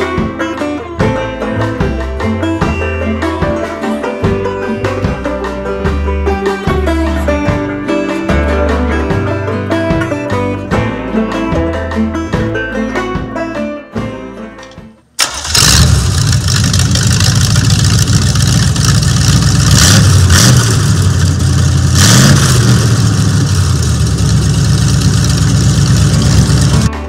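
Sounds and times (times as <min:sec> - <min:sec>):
engine starting and revving: 0:15.2 - 0:26.9.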